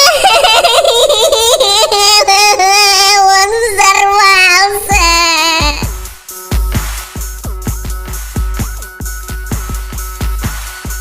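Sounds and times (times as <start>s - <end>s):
high voice singing wordless note: 2.8s - 5.9s.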